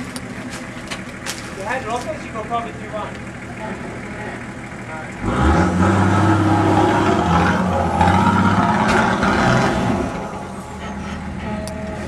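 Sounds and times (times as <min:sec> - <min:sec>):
engine revving under load: 0:05.0 - 0:11.8.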